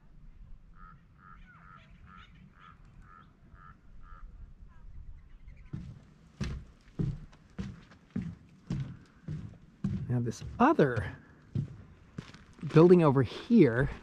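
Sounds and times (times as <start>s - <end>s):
bird calling: 0.7s - 6.2s
footsteps on dirt path: 5.7s - 14.0s.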